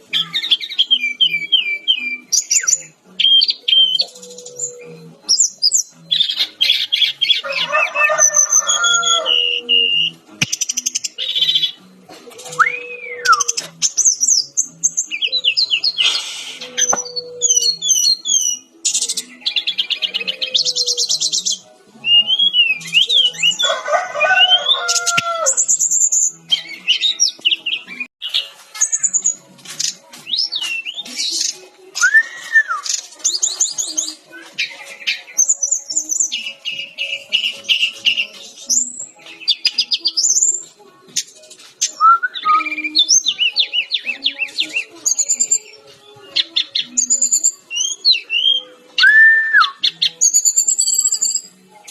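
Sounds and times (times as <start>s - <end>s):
flycatcher singing trills and whistles: 0.1s - 7.4s, 12.4s - 23.7s, 24.4s - 28.1s, 28.8s - 51.6s.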